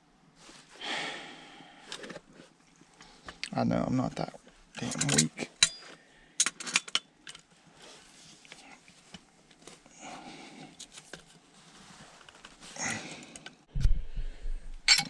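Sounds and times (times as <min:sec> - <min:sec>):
metal tools clinking and scraping: 0:04.8 - 0:07.1.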